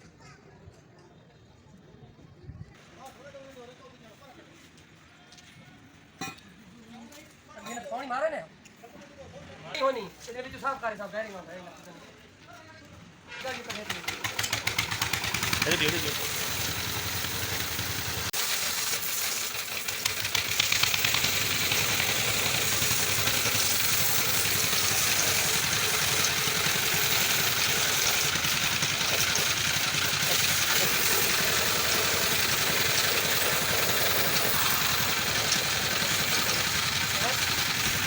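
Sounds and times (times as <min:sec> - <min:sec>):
steady motor running: 0:14.6 - 0:38.0.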